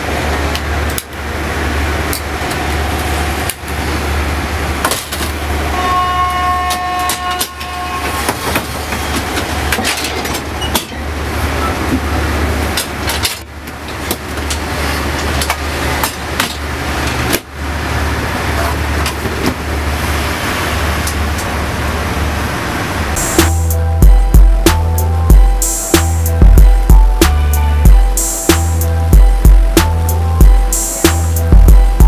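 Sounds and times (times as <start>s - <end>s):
train carriage rumble and rattle: 0.0s - 32.0s
two-note tone: 23.2s - 32.0s.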